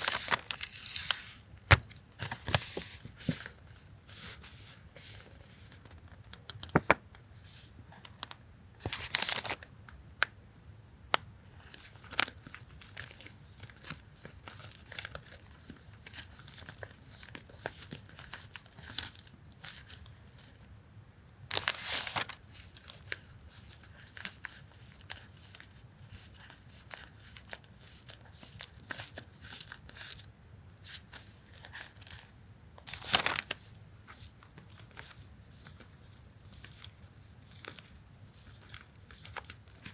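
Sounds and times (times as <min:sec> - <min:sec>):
packaging tearing: 0:00.0 - 0:01.8
packaging crinkling and rustling: 0:00.0 - 0:07.0, 0:08.2 - 0:09.6, 0:32.9 - 0:39.9.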